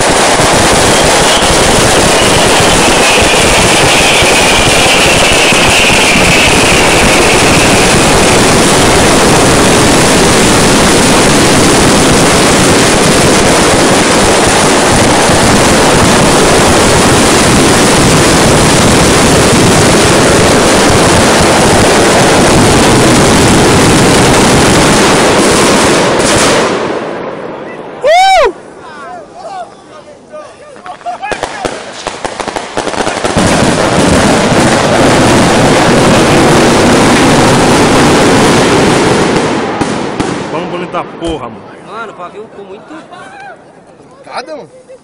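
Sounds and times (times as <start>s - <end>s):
high firework whistle: 0.0s - 25.2s
fireworks crackling: 0.0s - 42.8s.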